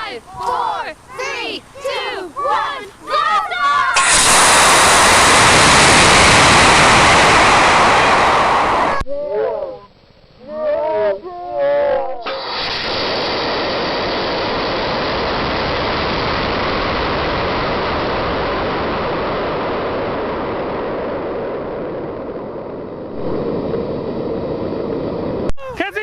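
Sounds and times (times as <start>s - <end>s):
wind rushing over camera: 4.0s - 9.1s, 12.1s - 25.5s.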